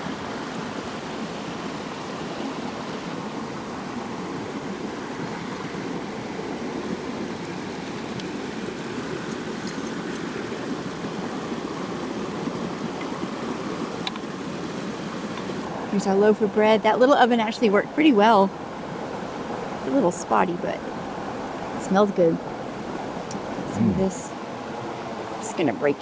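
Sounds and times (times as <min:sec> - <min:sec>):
creek water rushing: 0:00.0 - 0:26.0
faint light clicks: 0:14.0 - 0:14.3.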